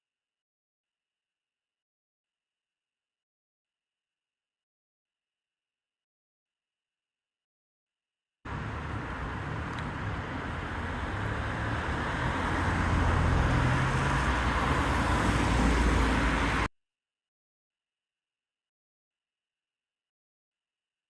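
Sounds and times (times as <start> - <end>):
vehicle rumble and hiss: 8.5 - 16.7.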